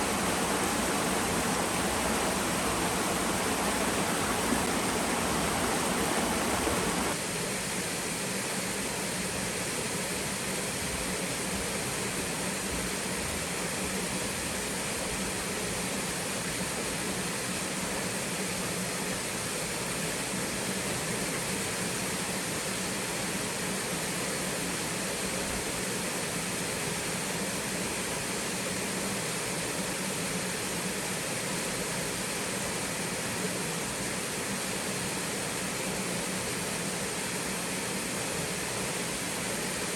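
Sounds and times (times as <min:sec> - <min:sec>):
small waterfall splashing: 0:00.0 - 0:07.2.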